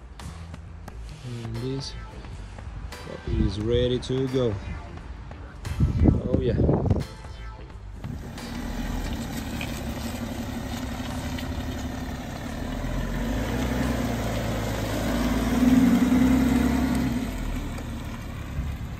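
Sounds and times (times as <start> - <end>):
diesel engine low hum: 8.0 - 18.9.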